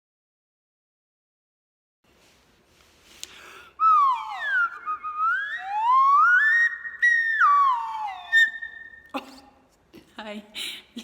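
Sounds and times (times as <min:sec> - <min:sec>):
sliding whistled note: 0:03.8 - 0:09.1.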